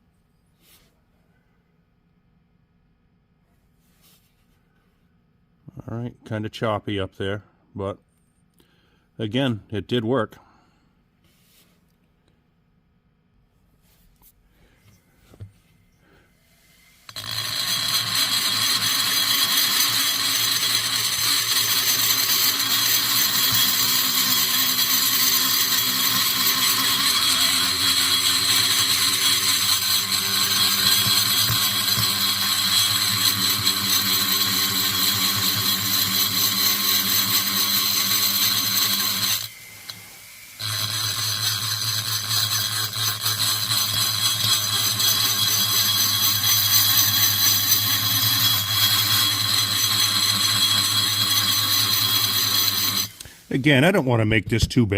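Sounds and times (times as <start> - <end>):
rotary tool grinding metal: 16.5 - 53.8.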